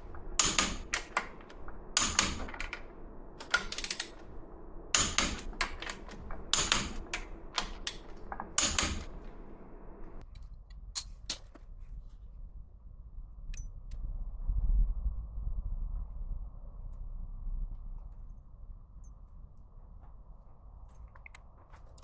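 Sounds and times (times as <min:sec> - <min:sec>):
low rumble: 0:00.0 - 0:10.3, 0:11.9 - 0:22.0
hand tools clicking on metal: 0:00.0 - 0:11.6.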